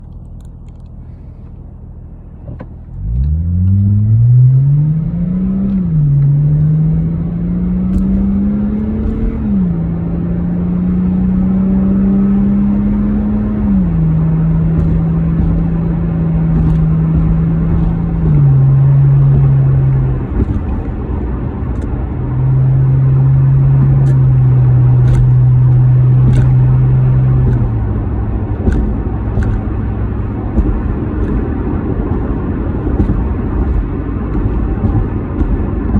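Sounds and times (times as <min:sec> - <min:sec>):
car exhaust drone: 0:00.0 - 0:35.9.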